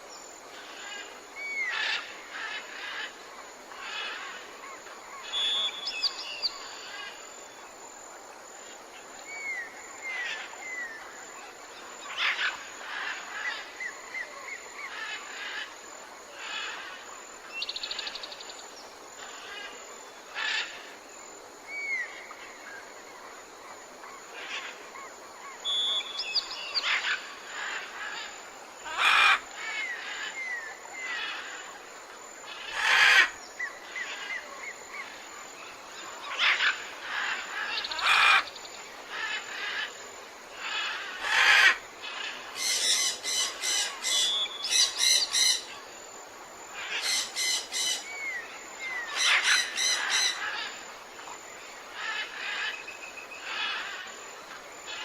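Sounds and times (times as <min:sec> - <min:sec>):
background hiss: 0:00.0 - 0:55.0
wild birds chirping and singing: 0:00.0 - 0:55.0
bird trill: 0:25.6 - 0:27.0.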